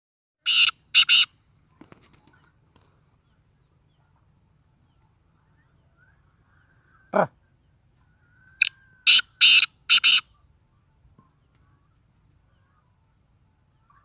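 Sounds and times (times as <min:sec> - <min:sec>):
bird harsh call: 0:00.4 - 0:01.4, 0:08.1 - 0:10.5.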